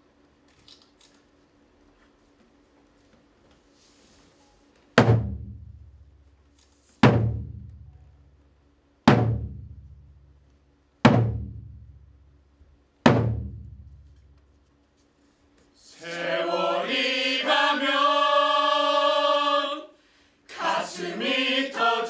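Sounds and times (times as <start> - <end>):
large drum beats: 5.0 - 6.2, 7.0 - 8.0, 9.1 - 10.3, 11.1 - 12.2, 13.1 - 14.1.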